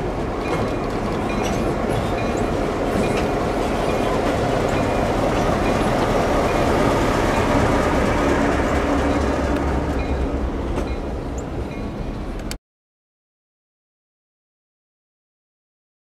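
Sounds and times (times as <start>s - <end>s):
train rumbling on rails: 0.0s - 12.6s.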